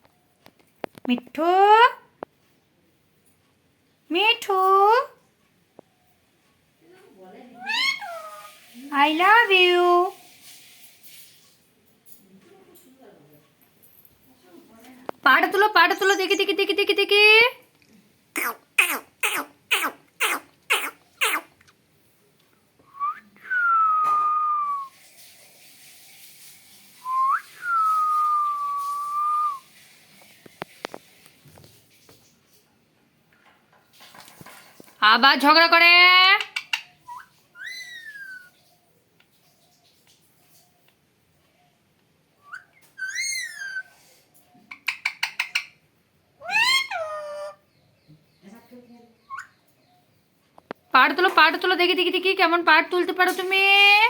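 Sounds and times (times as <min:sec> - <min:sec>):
parrot whistling: 0:07.6 - 0:08.5, 0:36.6 - 0:38.6, 0:42.4 - 0:44.0, 0:46.4 - 0:47.6, 0:49.3 - 0:49.5
parrot screeching: 0:07.6 - 0:08.6, 0:18.4 - 0:21.6, 0:36.5 - 0:38.6, 0:42.5 - 0:44.0, 0:46.4 - 0:47.6.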